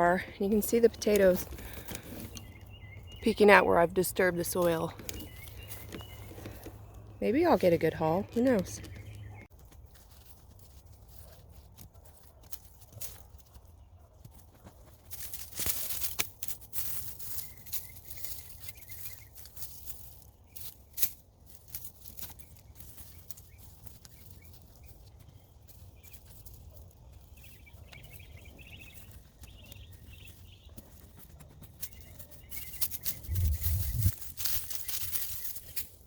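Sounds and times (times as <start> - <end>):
hands digging in soil: 14.1 - 36.0
low rumble: 33.2 - 34.2.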